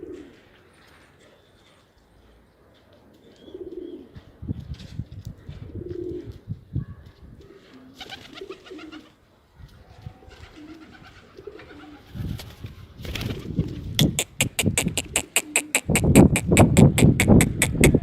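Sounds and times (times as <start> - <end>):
pigeons cooing: 0.0 - 1.8, 3.2 - 4.3, 5.4 - 6.4, 7.4 - 9.2, 10.0 - 18.0
rapid sharp clicks or claps: 14.0 - 18.0.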